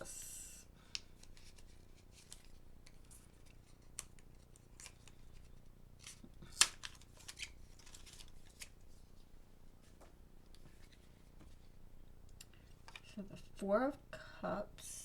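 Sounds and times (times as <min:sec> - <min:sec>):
cards clicking and rustling: 0:00.8 - 0:09.2, 0:09.9 - 0:13.6
sharp card snap: 0:06.0 - 0:07.6.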